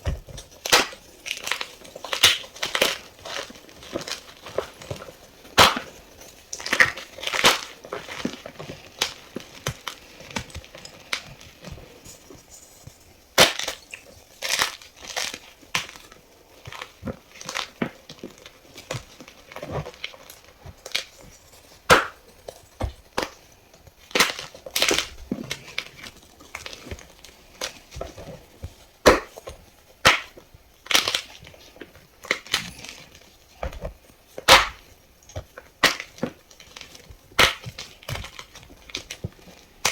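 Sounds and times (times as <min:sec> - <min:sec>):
chalk block crunching: 0:00.0 - 0:39.9.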